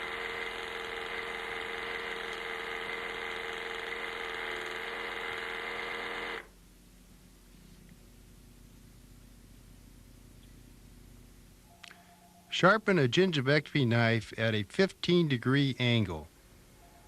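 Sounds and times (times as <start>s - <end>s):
machine motor whining: 0.0s - 6.5s.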